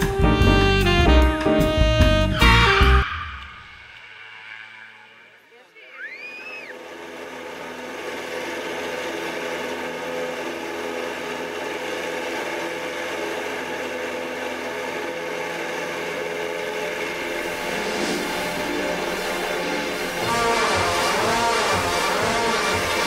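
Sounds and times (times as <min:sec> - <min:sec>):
light aircraft propeller engine: 0:06.5 - 0:23.0.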